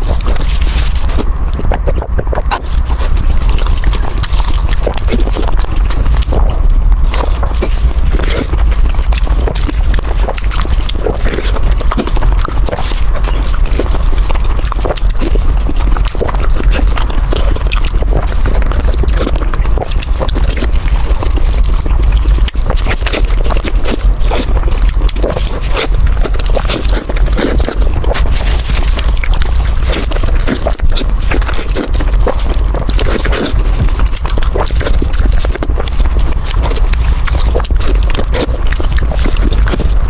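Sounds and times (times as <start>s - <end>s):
low rumble: 0.0s - 40.0s
person chewing: 0.0s - 40.0s.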